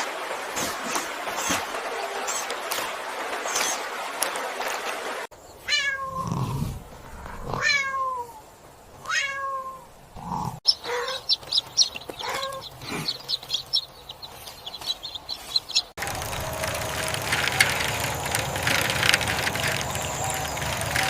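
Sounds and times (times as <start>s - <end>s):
cat meowing: 5.7s - 6.5s, 7.3s - 8.3s, 9.0s - 9.9s, 10.8s - 11.2s, 12.2s - 12.7s.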